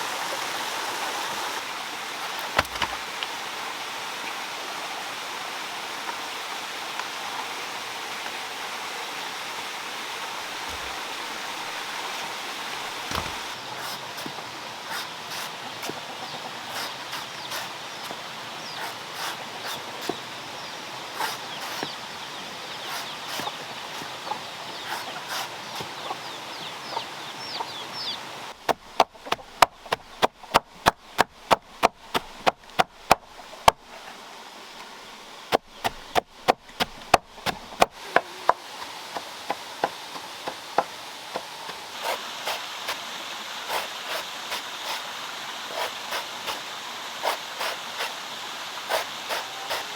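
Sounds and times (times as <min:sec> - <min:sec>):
sharp knocks: 0:02.5 - 0:03.0, 0:10.7 - 0:11.8, 0:12.8 - 0:13.6
birds chirping: 0:10.4 - 0:14.2, 0:14.9 - 0:28.6.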